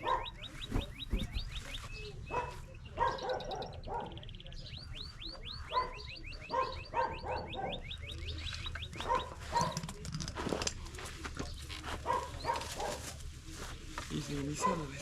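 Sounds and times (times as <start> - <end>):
dogs barking: 0.0 - 4.3, 5.6 - 10.0, 11.8 - 13.2, 14.5 - 15.0.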